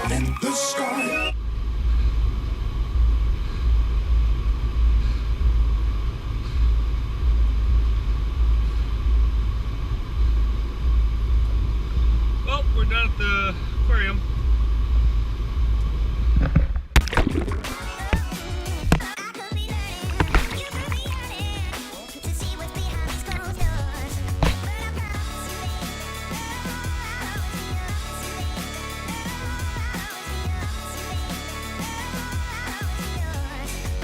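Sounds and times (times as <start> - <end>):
loud low rumble: 1.4 - 19.0, 22.4 - 25.4
music with sharp beats: 17.0 - 34.0.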